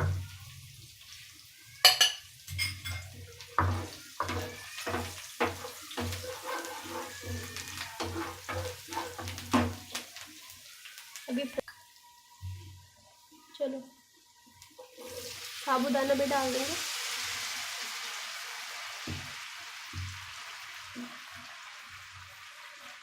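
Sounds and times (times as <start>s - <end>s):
spoon scraping and knocking pan: 1.8s - 10.2s.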